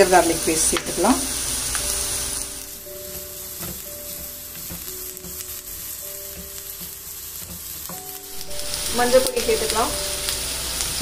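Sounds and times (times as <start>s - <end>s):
onions sizzling in oil: 0.0s - 11.0s
wooden spatula tapping a pan: 3.0s - 8.1s.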